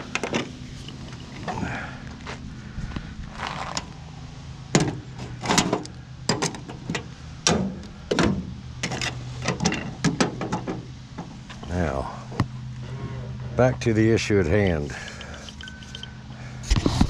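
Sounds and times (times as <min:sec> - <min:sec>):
steady low hum: 0:00.0 - 0:17.0
metal scrap clanking: 0:14.9 - 0:16.2.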